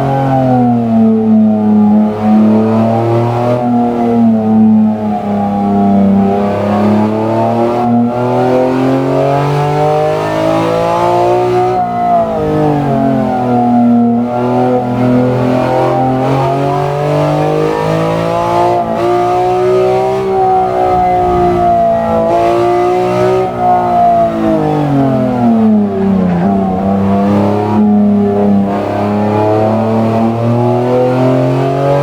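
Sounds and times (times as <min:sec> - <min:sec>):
car engine running: 0:11.8 - 0:31.0.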